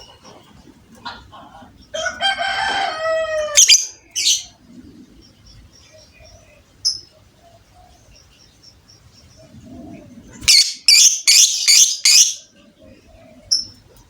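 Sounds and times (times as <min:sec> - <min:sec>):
bird chirping: 0:03.6 - 0:14.0.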